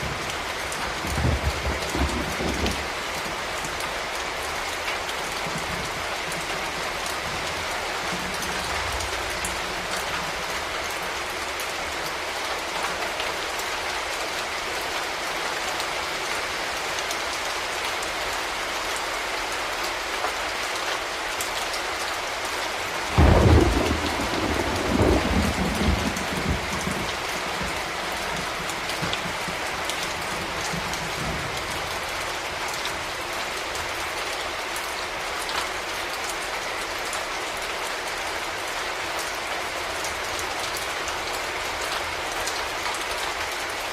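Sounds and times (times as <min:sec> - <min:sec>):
thunder clap and rumble: 0:00.0 - 0:03.4, 0:23.1 - 0:31.7
heavy rain falling: 0:00.0 - 0:43.9.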